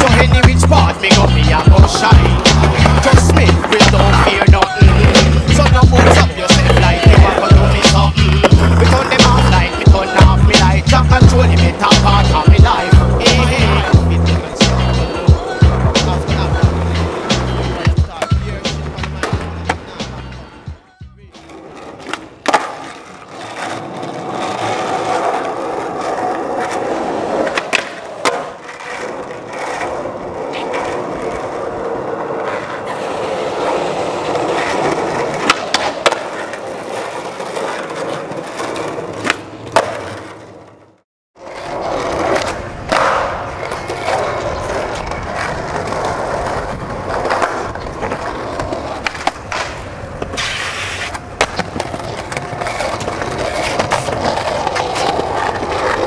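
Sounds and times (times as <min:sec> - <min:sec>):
skateboard pops and clacks: 0:00.0 - 0:13.6, 0:21.4 - 0:31.5, 0:34.2 - 0:40.8, 0:41.9 - 0:56.0
skateboard wheels rolling on concrete: 0:00.0 - 0:56.0.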